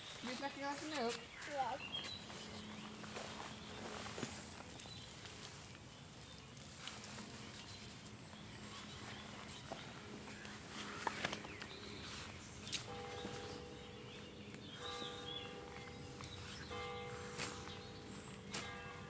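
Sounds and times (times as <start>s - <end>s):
light clicks and scuffs: 0.0s - 13.6s.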